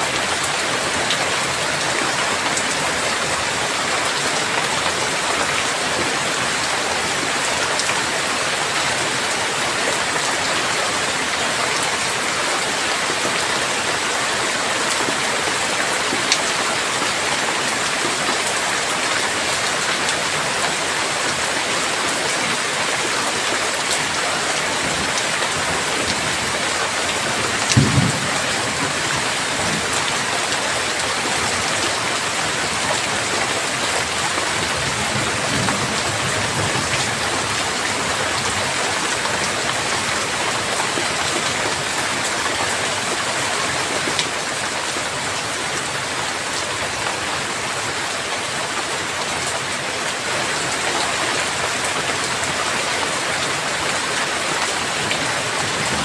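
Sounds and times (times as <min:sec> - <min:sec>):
heavy rain falling: 0:00.0 - 0:56.0
low thunder rumble: 0:27.5 - 0:29.9.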